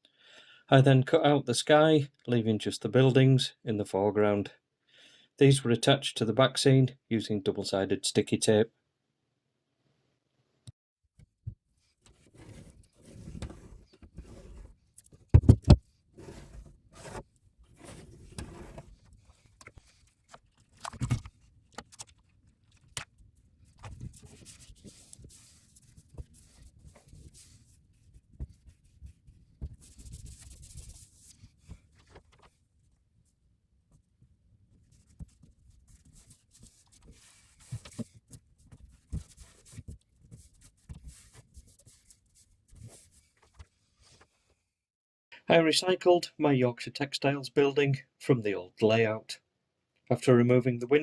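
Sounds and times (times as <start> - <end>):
cardboard rubbing and scraping: 11.8 - 32.6, 34.7 - 44.5.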